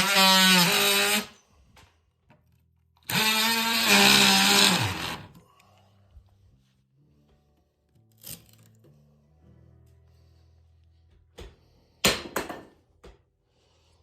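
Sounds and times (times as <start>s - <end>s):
power cutting tool whining: 0.0s - 1.4s, 3.1s - 5.3s.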